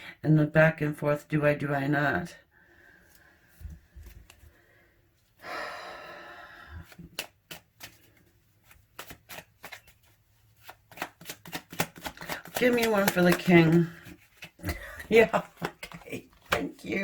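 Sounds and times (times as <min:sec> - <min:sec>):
cards being shuffled: 0:06.8 - 0:17.0
card snaps and clicks: 0:06.9 - 0:08.0, 0:10.6 - 0:13.8.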